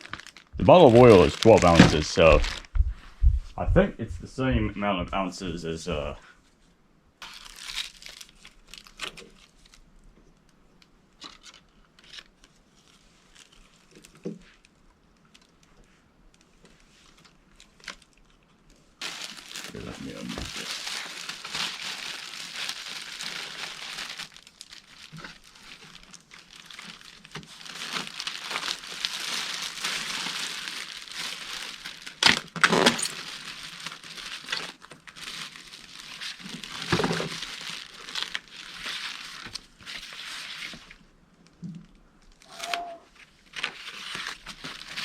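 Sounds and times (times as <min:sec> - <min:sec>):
packaging rustling: 0:00.0 - 0:02.9, 0:07.2 - 0:09.8, 0:19.0 - 0:41.0, 0:42.4 - 0:45.0.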